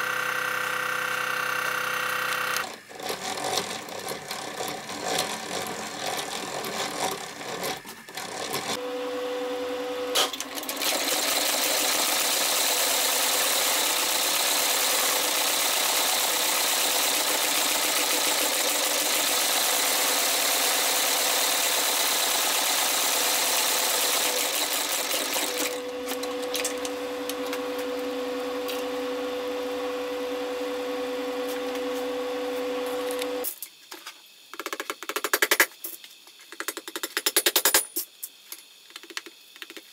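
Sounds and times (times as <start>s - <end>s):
machine stitching leather: 0.0s - 8.8s, 10.1s - 27.9s
machine motor humming: 25.0s - 33.5s.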